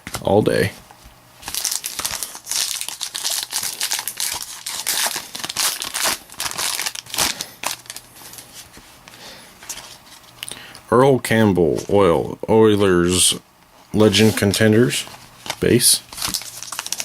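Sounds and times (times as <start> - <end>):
foil wrapper tearing and crinkling: 1.4 - 8.1, 15.4 - 17.0.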